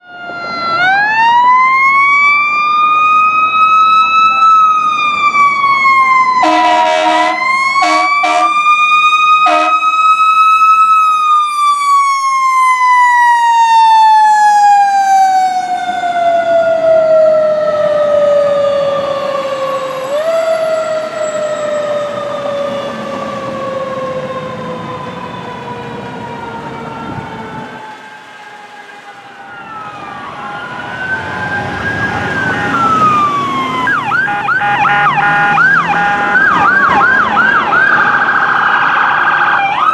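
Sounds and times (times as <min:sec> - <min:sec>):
fire engine siren wailing: 0:00.0 - 0:39.9
air horn blasts: 0:06.4 - 0:08.6, 0:09.4 - 0:10.0, 0:34.1 - 0:36.7.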